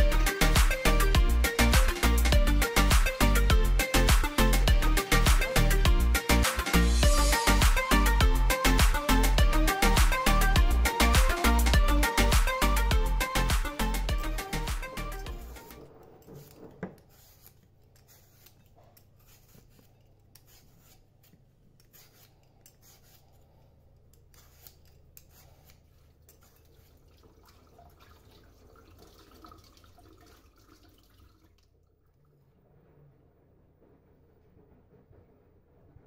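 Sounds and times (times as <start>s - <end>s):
background music: 0.0s - 16.2s.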